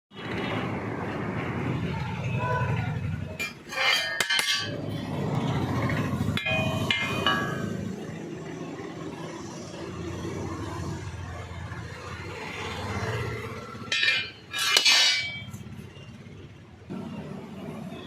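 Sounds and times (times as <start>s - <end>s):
metal clanking: 3.3s - 8.0s, 13.8s - 15.6s.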